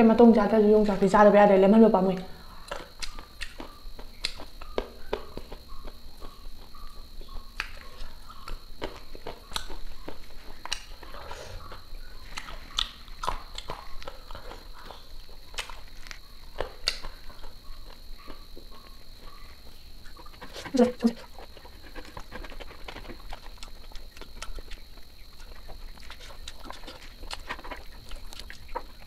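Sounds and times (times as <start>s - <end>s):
person chewing food: 2.6s - 29.0s
wet mouth and lip smacks: 2.7s - 6.7s, 7.6s - 11.0s, 12.3s - 14.9s, 15.5s - 17.1s, 21.4s - 29.0s.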